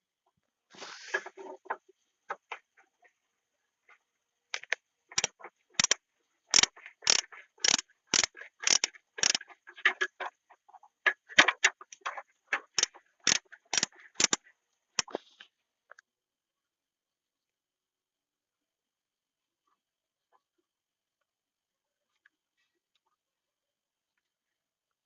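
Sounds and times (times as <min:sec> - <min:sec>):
sharp knocks and clicks: 0:04.6 - 0:10.3, 0:11.1 - 0:14.4.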